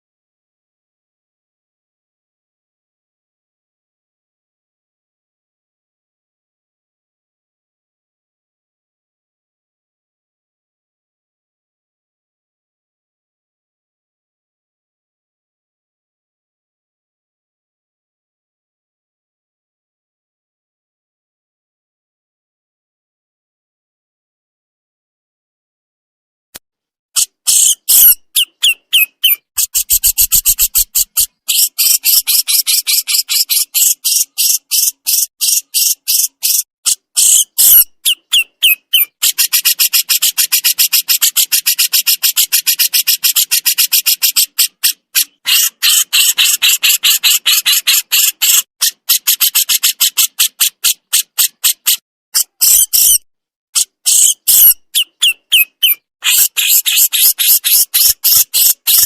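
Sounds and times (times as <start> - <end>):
songbird chattering call: 27.5 - 36.6, 54.1 - 59.0.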